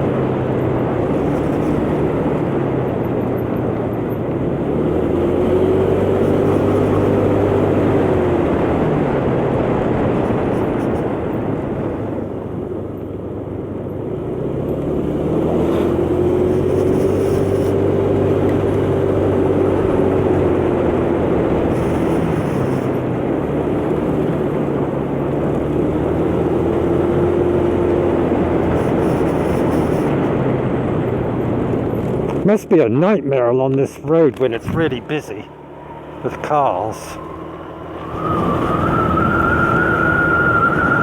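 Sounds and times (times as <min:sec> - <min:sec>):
motor scooter engine running: 0:00.0 - 0:32.4
wind and road noise: 0:00.0 - 0:41.0.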